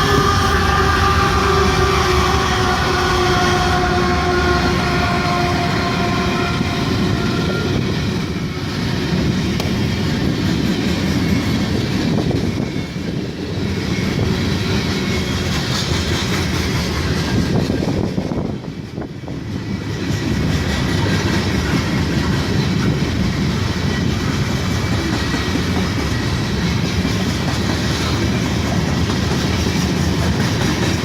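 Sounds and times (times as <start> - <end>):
locomotive horn chord: 0.0 - 7.8
train wheels clattering on rail: 0.0 - 31.0.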